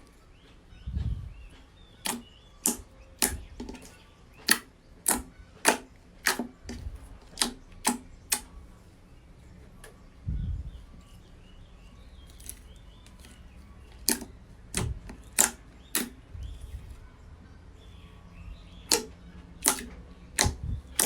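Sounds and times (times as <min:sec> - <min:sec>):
slime clicking pops: 0:02.0 - 0:06.8, 0:07.4 - 0:08.5, 0:14.0 - 0:16.2, 0:18.9 - 0:21.0.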